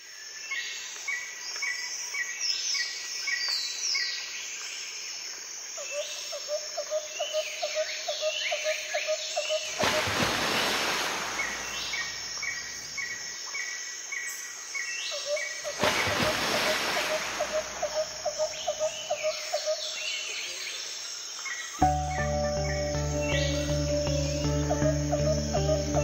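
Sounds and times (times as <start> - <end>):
birds calling: 9.5 - 13.2, 15.3 - 19.8.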